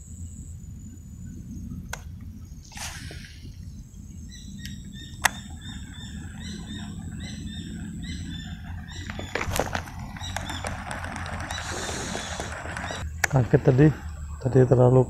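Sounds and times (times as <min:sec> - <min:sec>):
bird chirping: 0:00.0 - 0:15.0
thin steady high tone: 0:00.0 - 0:15.0
clicks and rustling: 0:08.6 - 0:13.4.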